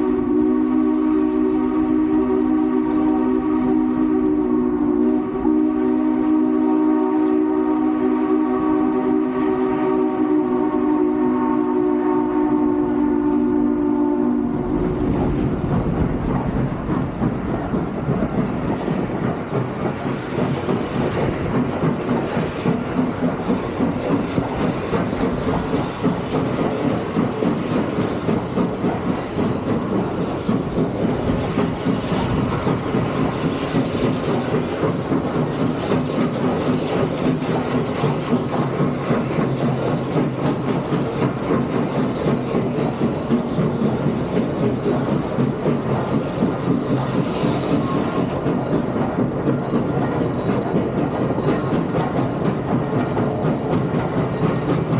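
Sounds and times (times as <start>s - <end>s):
steam locomotive chime whistle: 0.0s - 15.2s, 38.8s - 54.9s
train rumbling with pulsing rhythm: 0.0s - 54.9s.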